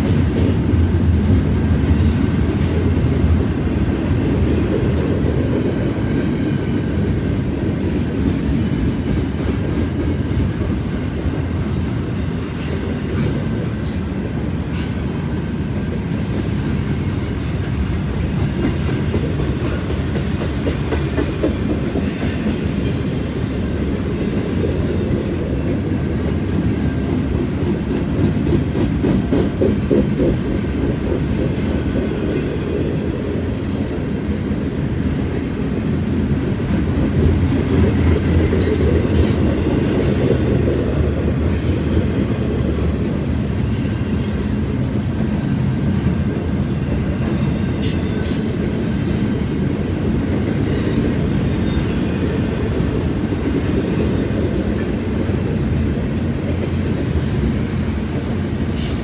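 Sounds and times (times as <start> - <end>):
train wheels rumbling and rattling: 0.0 - 59.0.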